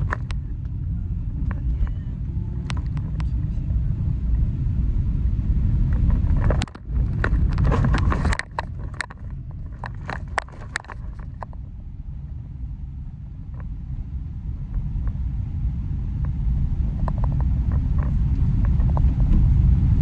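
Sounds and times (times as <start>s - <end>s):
sharp clicks and rattles: 0.0s - 0.7s, 1.3s - 3.5s, 5.8s - 11.6s, 16.2s - 20.0s
car road and engine rumble: 0.0s - 20.0s.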